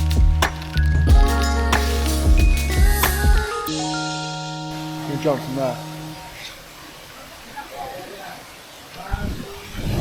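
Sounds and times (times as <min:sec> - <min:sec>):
bass line: 0:00.0 - 0:03.5
drum beat: 0:00.0 - 0:03.5
held melodic notes: 0:00.0 - 0:07.0.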